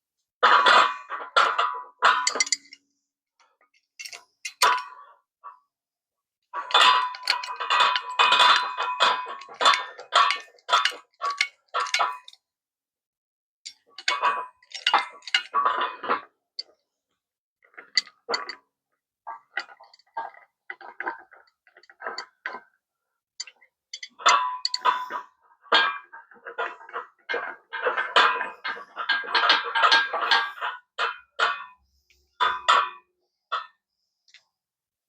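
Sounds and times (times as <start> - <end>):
metallic clicks from hand tools: 4.0 - 4.8.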